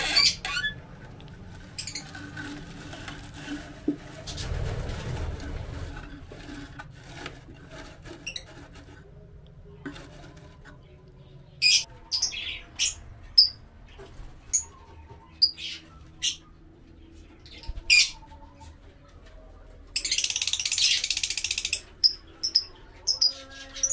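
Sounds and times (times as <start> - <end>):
bird chirps and squawks: 0.0 - 0.8
faint scratching: 0.0 - 23.9.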